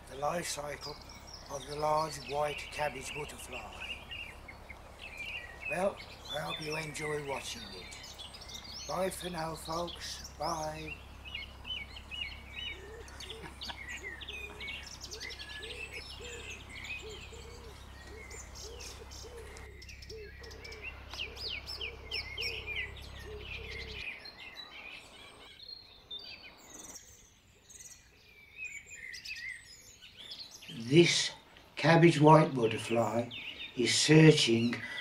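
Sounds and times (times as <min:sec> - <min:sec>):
low steady rumble: 0:00.0 - 0:24.0
small birds chirping: 0:00.0 - 0:35.0.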